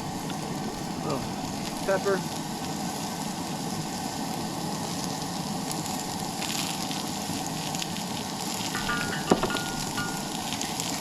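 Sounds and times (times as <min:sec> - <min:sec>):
vegetables sizzling in a pan: 0:00.0 - 0:11.0
sharp clink: 0:08.8 - 0:10.5.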